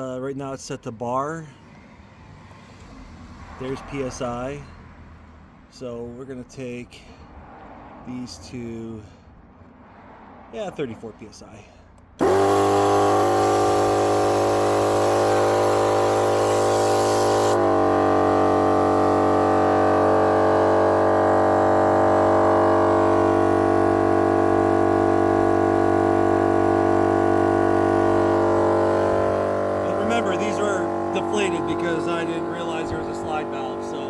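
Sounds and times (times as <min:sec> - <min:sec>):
air compressor motor hum: 0:12.2 - 0:34.0.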